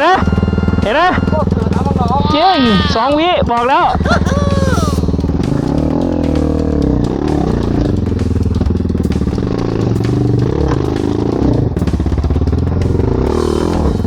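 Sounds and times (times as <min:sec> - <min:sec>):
dirt bike engine revving: 0:00.0 - 0:14.0
clatter: 0:05.0 - 0:14.0.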